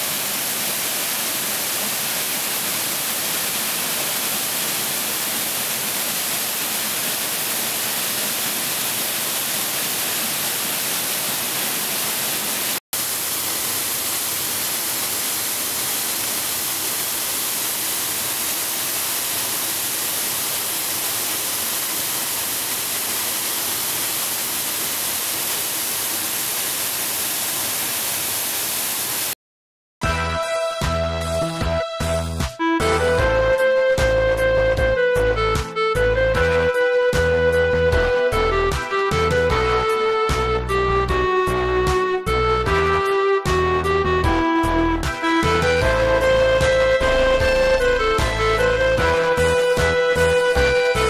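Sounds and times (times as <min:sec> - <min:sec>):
waterfall rushing: 0:00.0 - 0:29.4, 0:45.2 - 0:51.0.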